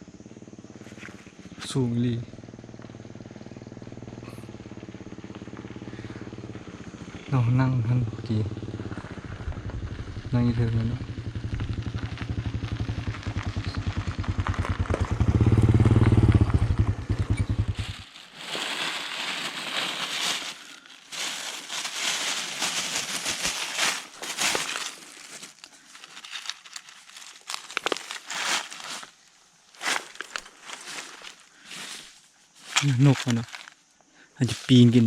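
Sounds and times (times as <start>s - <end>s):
small engine running: 0.0s - 29.1s
crackling and rustling: 16.4s - 33.8s.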